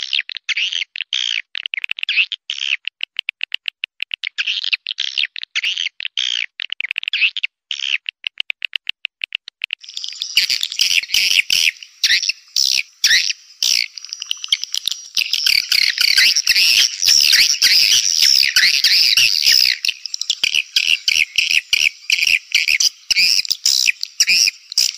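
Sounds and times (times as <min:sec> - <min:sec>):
sharp clicks: 0:01.6 - 0:05.5, 0:06.6 - 0:09.8.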